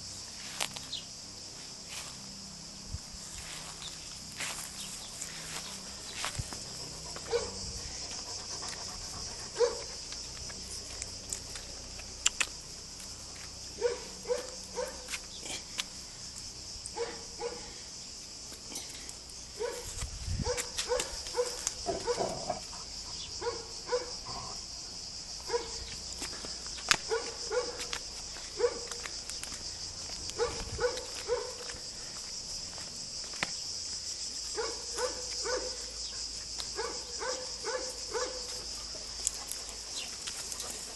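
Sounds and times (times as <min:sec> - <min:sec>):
dogs barking and yelping: 0:06.6 - 0:10.0, 0:13.8 - 0:15.1, 0:19.6 - 0:24.2, 0:30.3 - 0:31.7.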